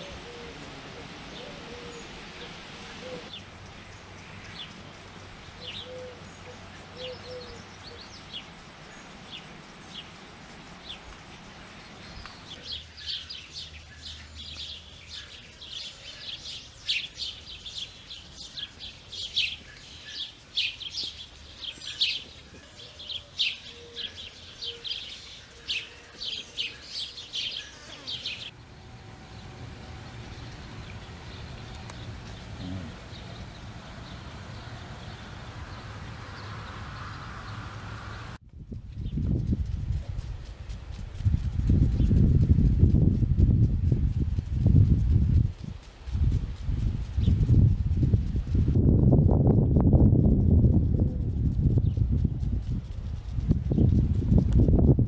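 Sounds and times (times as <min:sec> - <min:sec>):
small birds chirping: 0:00.0 - 0:38.4.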